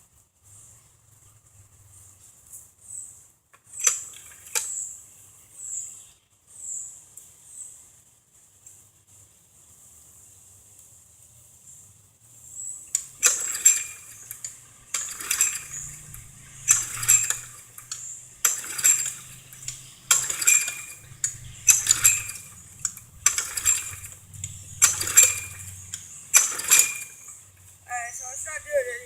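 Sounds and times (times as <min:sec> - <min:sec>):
recoil starter pulls whirring: 0:12.9 - 0:28.9.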